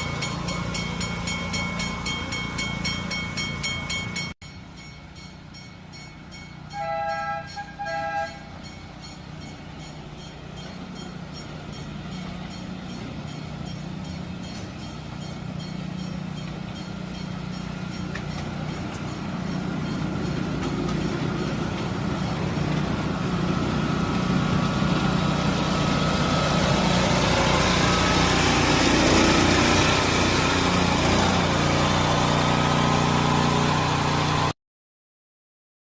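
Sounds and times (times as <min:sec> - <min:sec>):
locomotive engine droning: 0:00.0 - 0:34.5
locomotive horn toots: 0:06.7 - 0:08.7.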